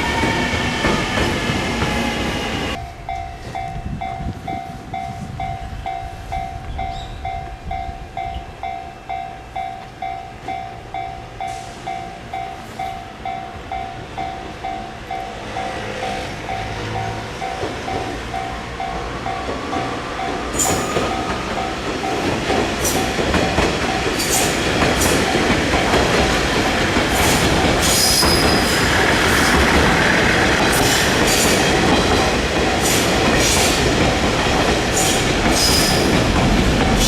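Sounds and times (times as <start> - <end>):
train wheels squealing: 6.7 - 7.4, 20.6 - 21.5, 27.2 - 29.7, 35.0 - 36.2
train rumble: 9.5 - 37.0.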